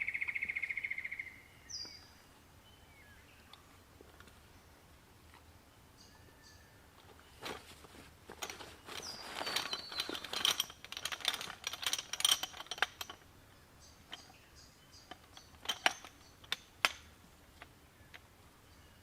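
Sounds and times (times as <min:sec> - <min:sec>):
metal gear clinking and rattling: 0:08.3 - 0:13.2, 0:15.1 - 0:17.0.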